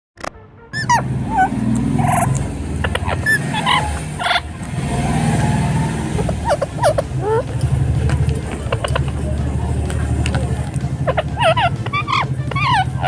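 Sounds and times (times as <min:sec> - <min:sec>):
steady low rumble: 0:00.6 - 0:13.0
parrot squawking and whistling: 0:00.7 - 0:04.5, 0:05.4 - 0:07.5, 0:11.0 - 0:13.0.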